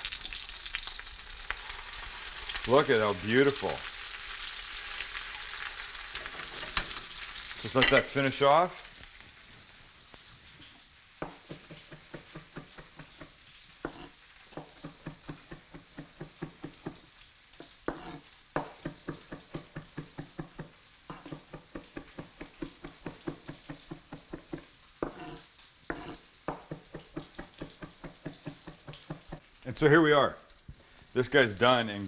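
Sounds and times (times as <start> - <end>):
chicken sizzling in a pan: 0.0 - 32.0.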